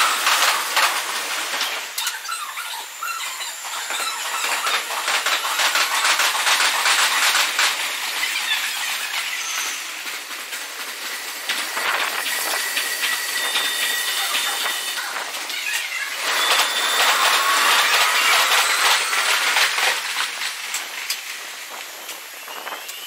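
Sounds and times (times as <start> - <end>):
high steady whine: 3.3 - 23.0
train wheels rattling: 3.4 - 22.8.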